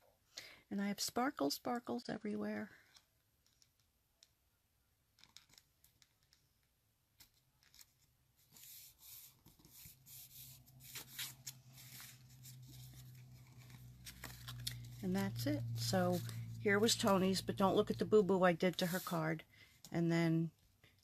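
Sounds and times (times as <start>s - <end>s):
paper rustling and scraping: 7.6s - 19.2s
low steady hum: 8.6s - 21.0s.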